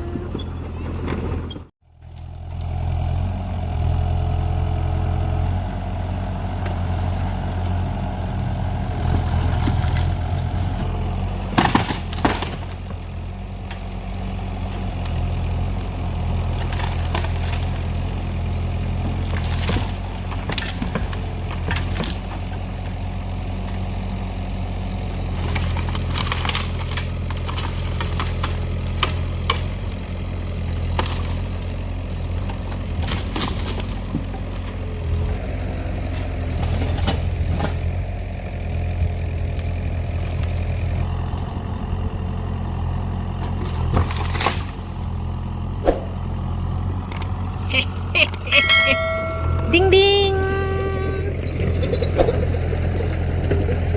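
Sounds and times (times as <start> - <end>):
excavator diesel engine running: 0.0 - 53.9
knocks and clanks: 11.5 - 12.8.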